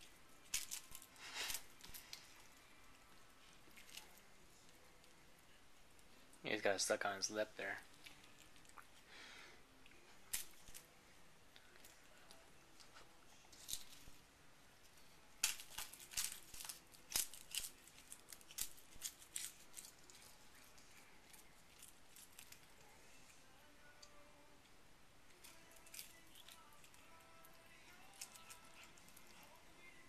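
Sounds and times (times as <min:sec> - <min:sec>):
cat crunching dried seaweed: 0:00.0 - 0:05.1, 0:15.4 - 0:23.2, 0:25.3 - 0:30.0.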